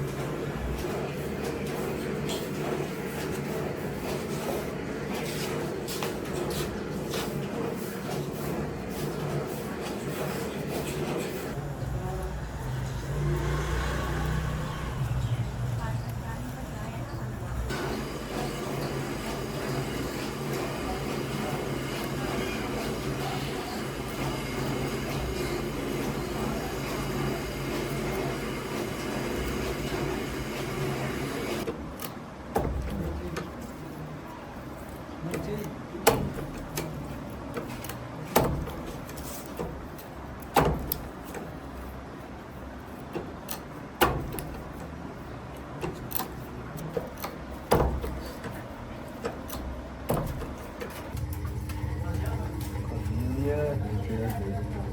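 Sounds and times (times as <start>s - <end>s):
electric motor humming: 51.2s - 54.9s.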